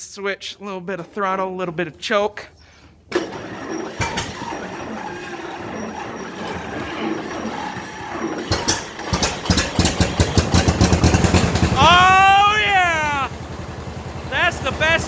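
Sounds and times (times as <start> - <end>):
tractor engine cranking: 2.9 - 15.0
tractor engine firing with pops: 3.1 - 12.7.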